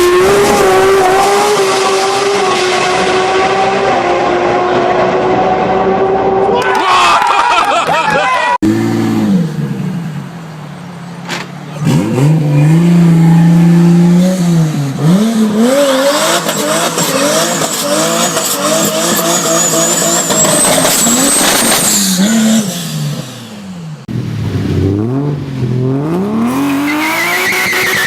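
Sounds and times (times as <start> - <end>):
car engine revving hard: 0.0 - 6.4, 11.8 - 23.6.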